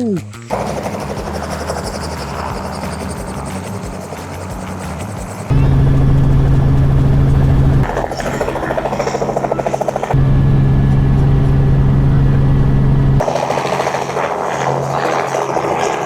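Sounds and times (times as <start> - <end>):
fast helicopter rotor chop: 0.4 - 16.0
helicopter drone: 0.4 - 16.0.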